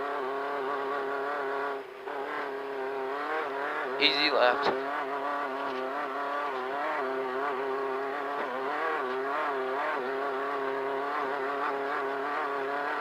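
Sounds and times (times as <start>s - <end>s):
race car engine running hard: 0.0s - 13.0s.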